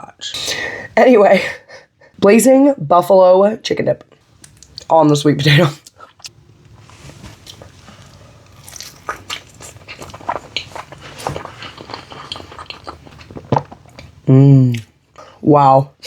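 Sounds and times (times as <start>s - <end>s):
chewing with wet mouth smacks: 7.4s - 15.3s.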